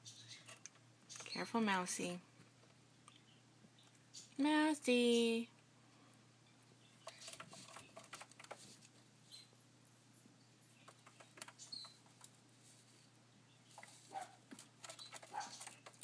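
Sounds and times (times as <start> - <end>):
soft high bird sounds: 0.0 - 2.1, 3.0 - 4.5, 6.1 - 16.0
bird pecking clicks and taps: 7.0 - 9.0, 10.8 - 12.4, 13.8 - 16.0.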